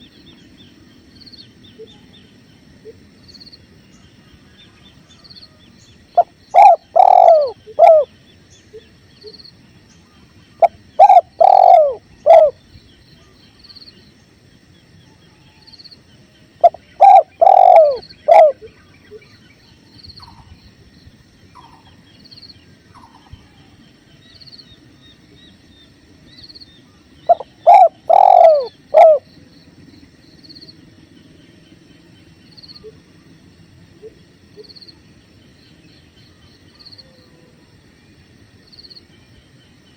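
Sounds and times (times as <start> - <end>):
faint insect chirp: 0.0 - 39.9
dove cooing: 6.2 - 8.1, 10.6 - 12.6, 16.6 - 18.8, 27.3 - 29.3.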